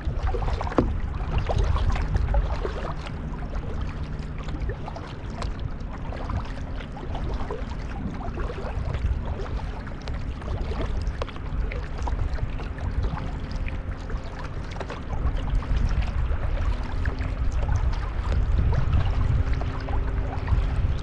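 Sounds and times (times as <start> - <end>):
steady low rumble: 0.0 - 21.0
water splashing around paddled kayak: 0.0 - 21.0.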